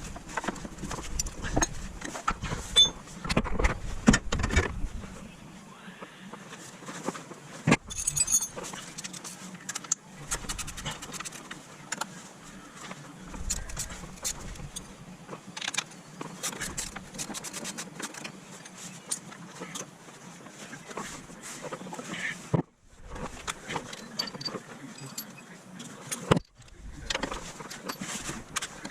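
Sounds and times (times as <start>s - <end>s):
metal tools clinking: 2.7s - 3.0s, 7.8s - 9.2s, 23.9s - 26.3s, 27.2s - 28.7s.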